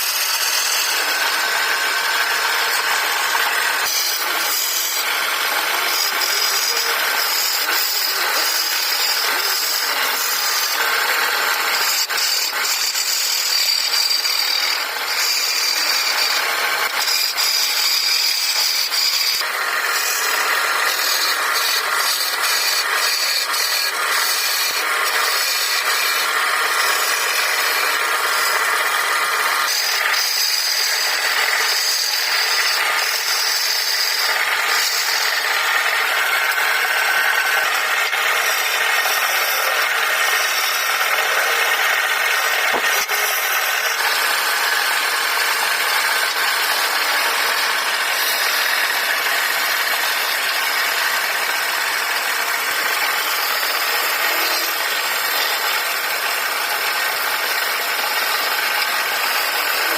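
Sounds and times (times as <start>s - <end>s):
wood lathe tool scraping wood: 0.0s - 59.9s.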